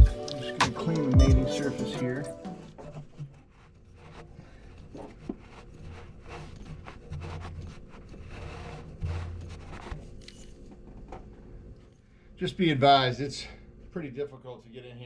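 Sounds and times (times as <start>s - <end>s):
rubbing and scraping on engine parts: 2.8s - 11.5s.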